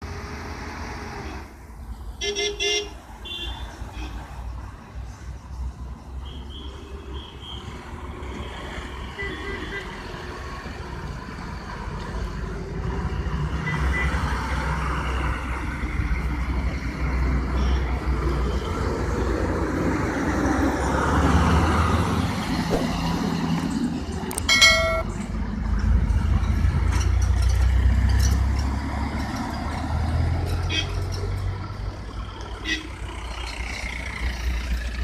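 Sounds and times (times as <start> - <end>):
diesel engine of heavy vehicle: 10.1 - 35.0.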